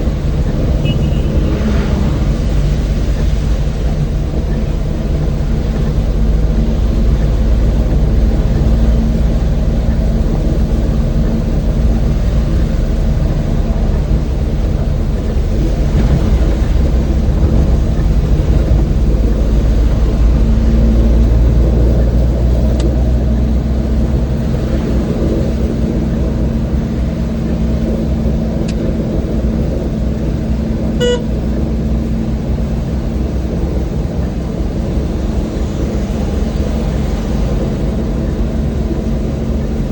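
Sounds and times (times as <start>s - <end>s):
road noise: 0.0s - 39.9s
van engine running: 0.0s - 39.9s
car horn toot: 0.6s - 2.2s, 31.0s - 31.4s.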